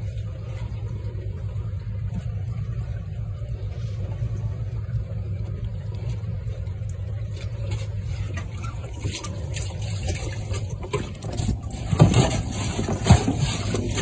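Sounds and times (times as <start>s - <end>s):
splashes: 0.0s - 14.0s
steady low rumble: 0.0s - 14.0s.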